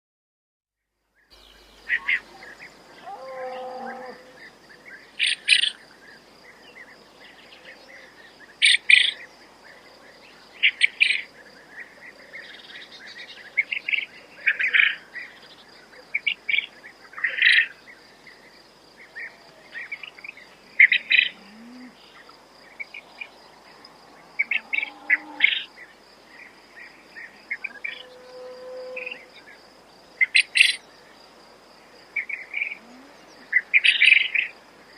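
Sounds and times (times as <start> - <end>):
insect trill: 1.0 - 34.9
quail calling: 5.2 - 5.8, 30.2 - 30.8.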